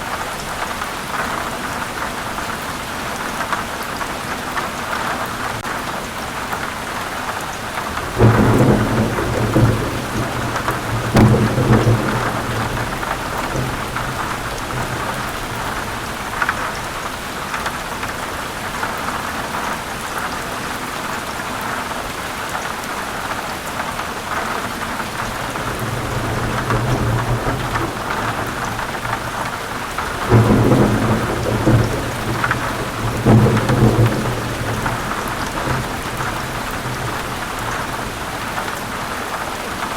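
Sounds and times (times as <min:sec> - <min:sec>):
heavy rain falling: 0:00.0 - 0:39.9
rolling thunder: 0:07.8 - 0:17.0, 0:25.1 - 0:38.7.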